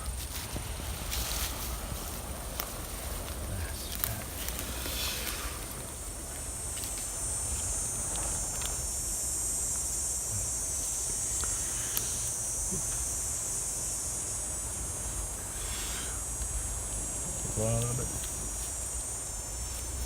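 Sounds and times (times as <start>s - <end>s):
person blowing on embers: 0.0s - 13.4s, 14.9s - 16.8s
high insect drone: 0.0s - 20.0s.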